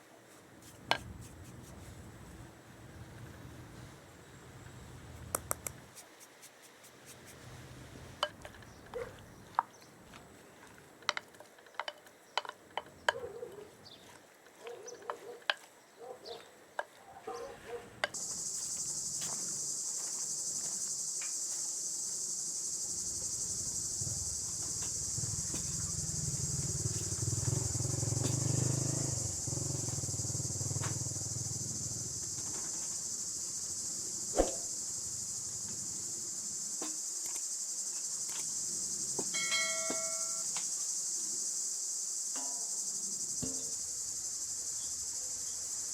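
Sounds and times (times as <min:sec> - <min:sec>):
insects chorus: 0:17.3 - 0:45.9.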